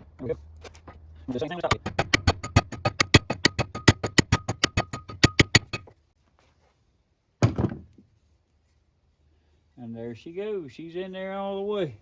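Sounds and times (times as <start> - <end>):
hammer tapping on metal: 1.6 - 5.9.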